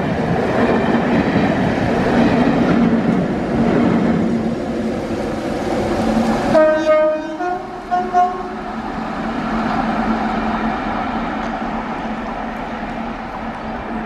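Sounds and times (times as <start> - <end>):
rail vehicle rumbling: 0.0 - 14.0
train horn: 6.5 - 8.7.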